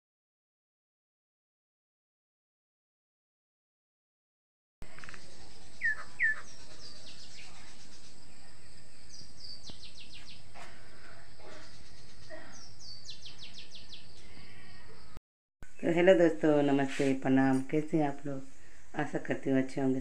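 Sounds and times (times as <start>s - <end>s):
birds calling: 4.9s - 16.1s.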